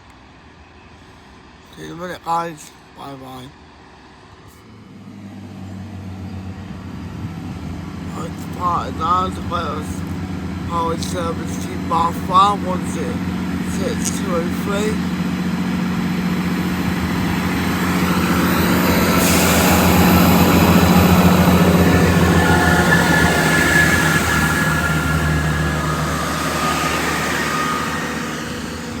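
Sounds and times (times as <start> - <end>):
diesel engines humming: 0.0 - 29.0
train wheels rumbling on rails: 6.7 - 29.0
wheel squeal: 15.2 - 29.0.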